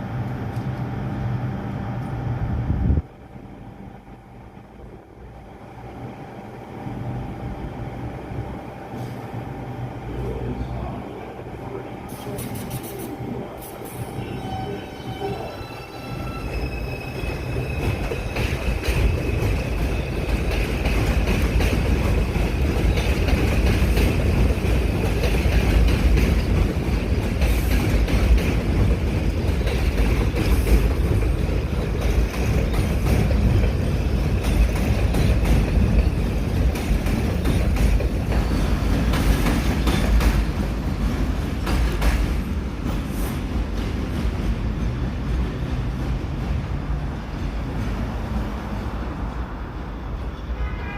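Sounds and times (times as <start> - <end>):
train wheels rumbling on rail: 2.1 - 50.9
high squeal: 12.1 - 18.8.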